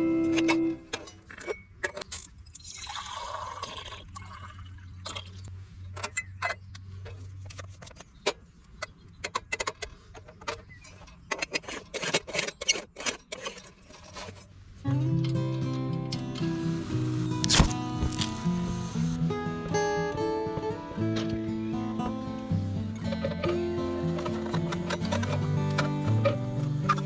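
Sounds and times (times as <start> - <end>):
pouring or splashing: 2.6 - 5.4.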